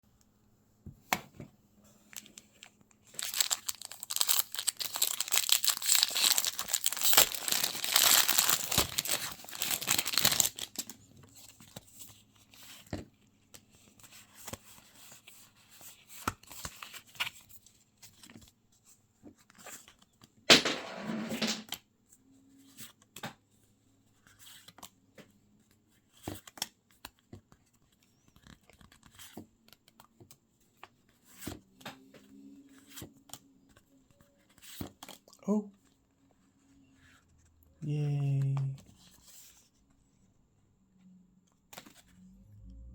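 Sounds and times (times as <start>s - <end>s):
foil wrapper tearing and crinkling: 2.1s - 10.9s
cards being handled: 2.1s - 13.0s.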